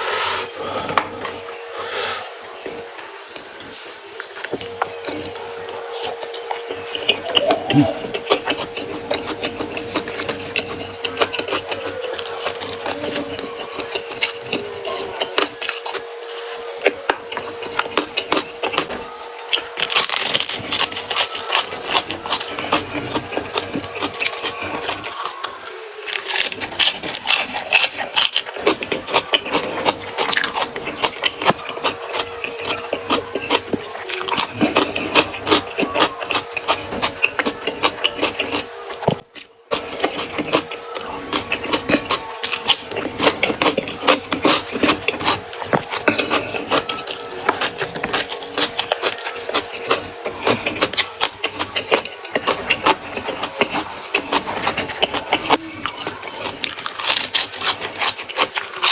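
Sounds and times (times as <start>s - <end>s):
person chewing crunchy food: 0.0s - 58.9s
steady hum: 0.0s - 58.9s.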